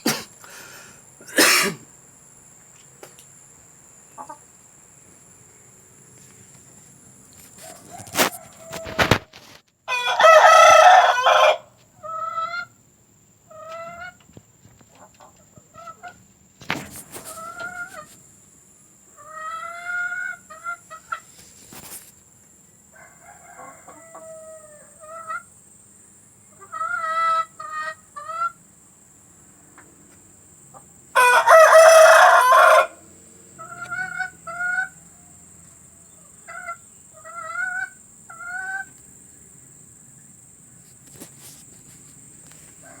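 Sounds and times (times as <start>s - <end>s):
hens clucking: 4.1s - 4.7s, 7.4s - 12.8s, 13.5s - 18.2s, 19.1s - 22.0s, 23.5s - 25.6s, 26.5s - 28.6s, 29.8s - 39.0s
rooster crowing: 7.6s - 9.2s, 9.9s - 12.2s, 22.9s - 25.4s, 31.1s - 37.9s, 42.8s - 43.0s.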